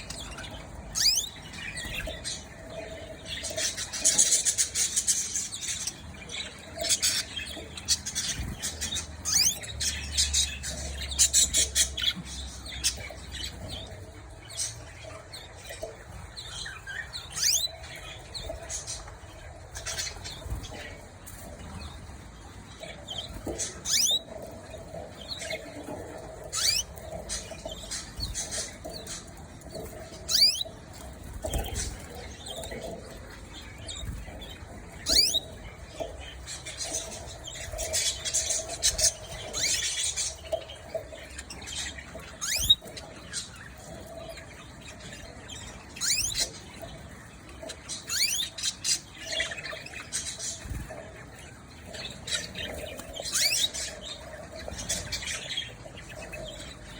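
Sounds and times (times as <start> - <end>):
high-pitched bird chattering: 0.0 - 2.5, 6.5 - 13.6, 16.7 - 19.2, 23.1 - 24.3, 25.2 - 30.8, 31.4 - 43.8, 45.1 - 46.6, 48.0 - 50.8, 51.9 - 55.5
canaries chirping: 0.0 - 56.9.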